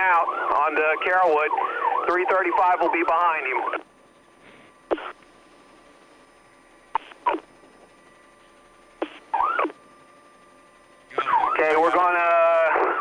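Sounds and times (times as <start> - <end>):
police radio bursts: 0.0 - 3.9, 4.5 - 5.2, 7.0 - 7.5, 9.0 - 9.8, 11.1 - 13.0
faint electronic hum: 0.0 - 13.0.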